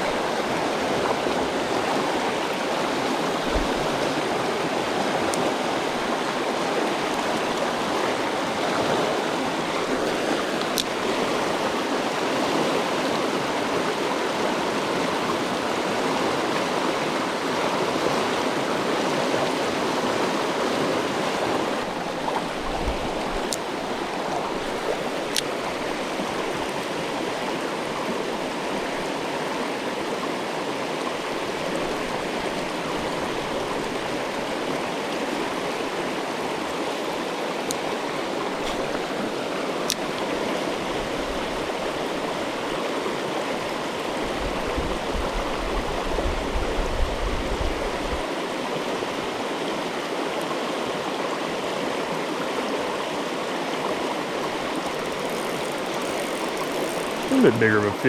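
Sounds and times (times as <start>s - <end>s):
creek water rushing over rocks: 0.0s - 58.0s
faint sharp ticks: 10.6s - 11.0s, 54.8s - 57.4s.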